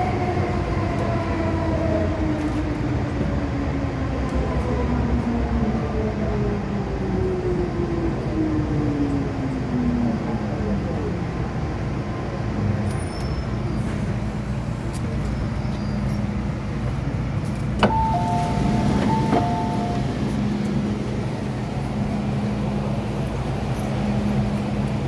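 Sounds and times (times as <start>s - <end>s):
electric train rumble and motor hum: 0.0s - 25.0s
two-note electronic chime: 17.9s - 20.1s.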